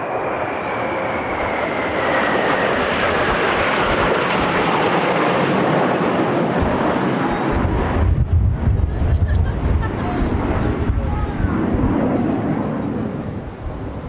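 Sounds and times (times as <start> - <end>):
jet flying past: 0.0 - 14.0
wind buffeting microphone: 6.0 - 14.0.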